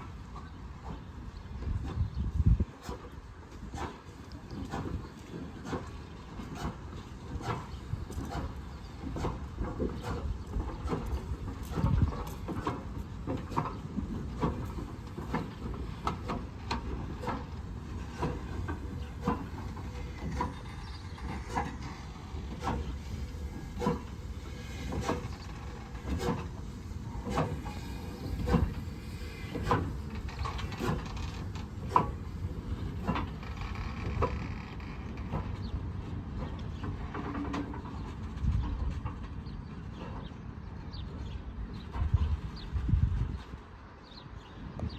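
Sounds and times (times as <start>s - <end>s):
train rumble: 0.0s - 44.8s
train wheels knocking over rail joints: 3.8s - 38.1s.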